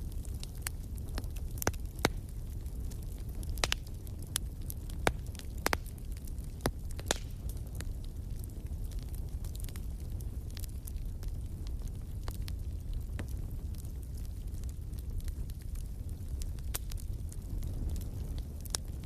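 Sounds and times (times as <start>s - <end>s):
low fire rumble: 0.0s - 19.0s
wood fire crackling and popping: 0.0s - 19.0s.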